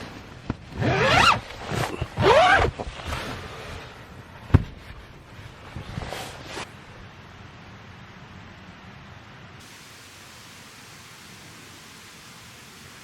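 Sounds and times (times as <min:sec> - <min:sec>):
zipper pulled: 0:00.6 - 0:03.8.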